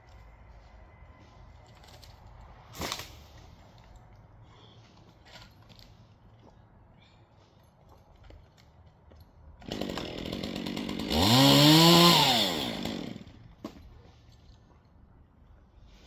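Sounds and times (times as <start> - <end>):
chainsaw engine revving: 9.6 - 13.3.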